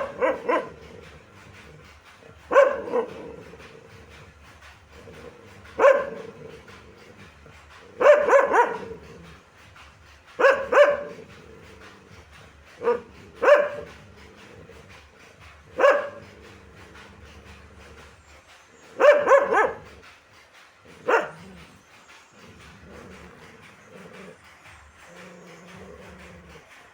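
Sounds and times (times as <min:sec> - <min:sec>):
dog barking: 0:00.0 - 0:01.2, 0:02.4 - 0:03.6, 0:05.0 - 0:06.7, 0:07.8 - 0:09.2, 0:10.4 - 0:11.3, 0:12.8 - 0:14.0, 0:15.7 - 0:16.4, 0:18.9 - 0:20.0, 0:21.0 - 0:21.6.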